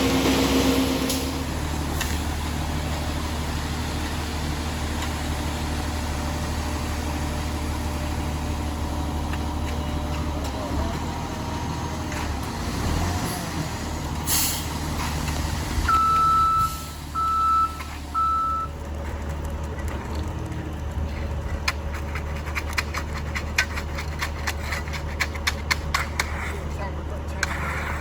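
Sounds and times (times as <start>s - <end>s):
truck diesel engine running: 0.0s - 27.4s
backup alarm beeping: 15.9s - 18.7s.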